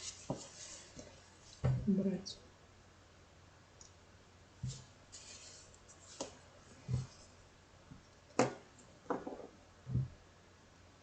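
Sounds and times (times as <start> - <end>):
paper rustle: 5.1 - 7.3.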